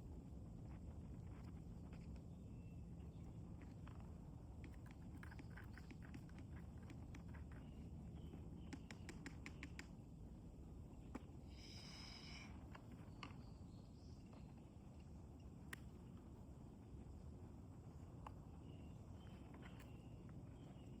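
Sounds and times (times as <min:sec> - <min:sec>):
low steady rumble: 0:00.0 - 0:09.1.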